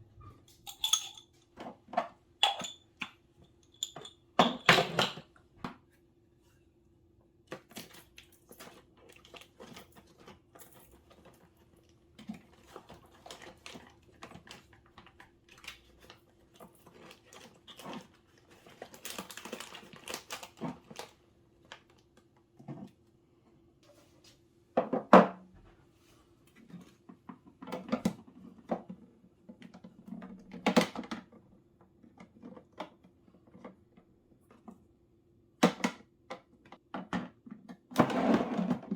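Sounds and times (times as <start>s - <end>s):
household objects clicking and knocking: 0.2s - 5.3s.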